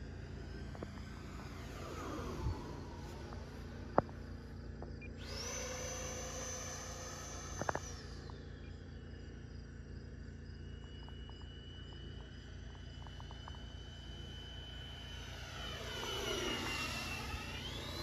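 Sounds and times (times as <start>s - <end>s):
distant electric fan whine: 0.0s - 18.0s.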